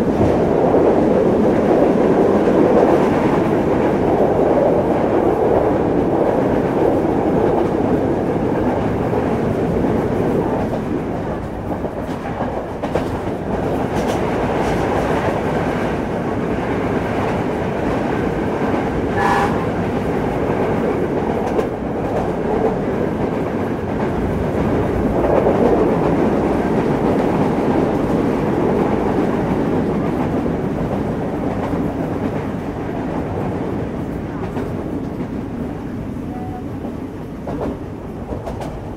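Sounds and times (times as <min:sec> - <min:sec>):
train wheels rumbling on rails: 0:00.0 - 0:38.9
wheels clicking over rail joints: 0:10.6 - 0:15.4.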